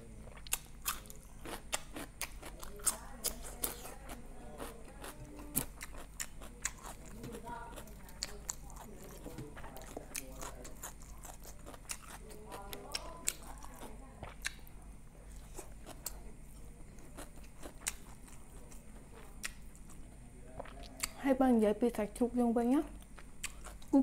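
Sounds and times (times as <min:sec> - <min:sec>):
person chewing food: 0:00.0 - 0:21.2, 0:23.0 - 0:24.0
faint murmur of voice: 0:02.5 - 0:17.4.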